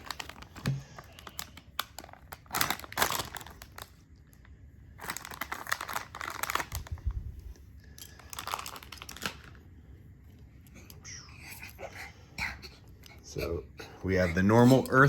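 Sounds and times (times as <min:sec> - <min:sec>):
wrapper tearing and crumpling: 0:00.0 - 0:04.4, 0:05.0 - 0:07.2, 0:08.1 - 0:09.6.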